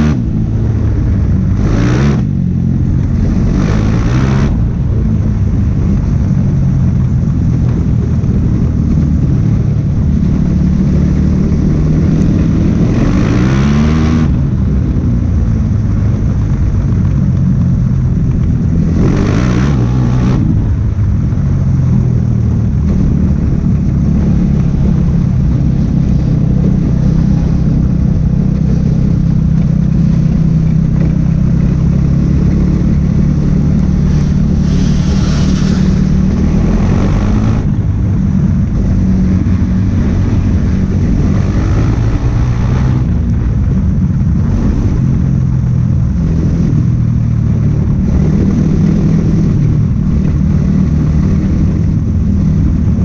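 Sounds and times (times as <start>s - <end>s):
race car engine droning: 0.0s - 53.0s
bursts of hiss: 34.1s - 36.1s.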